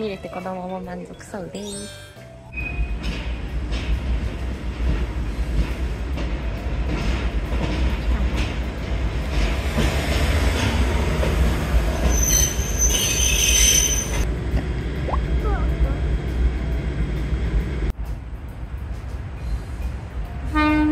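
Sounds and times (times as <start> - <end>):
train rumbling past: 2.2 - 20.9
high wheel squeal: 11.8 - 14.3.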